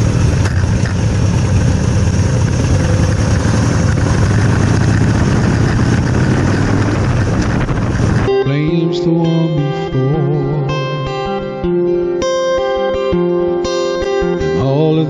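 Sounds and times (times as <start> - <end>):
motorcycle engine running: 0.0 - 8.9.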